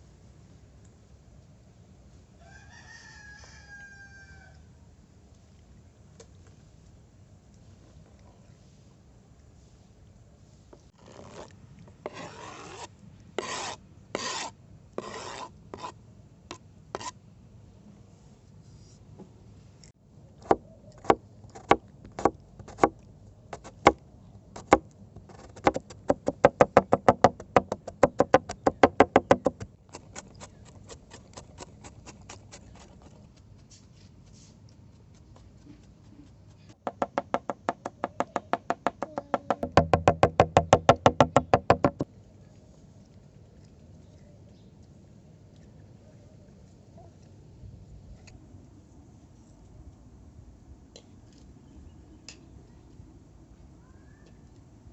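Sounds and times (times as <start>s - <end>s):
food grating: 12.1s - 16.0s, 23.6s - 23.9s, 29.9s - 33.2s
knife chopping on wooden board: 20.4s - 22.9s, 24.6s - 24.8s, 25.4s - 30.2s, 36.9s - 42.0s.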